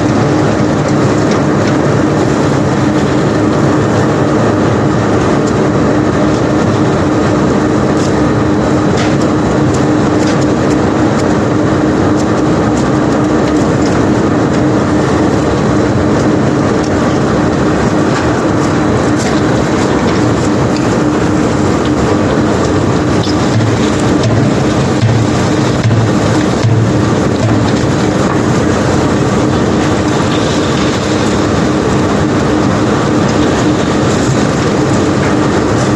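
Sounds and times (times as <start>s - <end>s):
rattle and rumble of cobblestones: 0.0s - 35.9s
unloading machinery humming: 0.0s - 35.9s
cobblestones clattering: 16.1s - 31.4s.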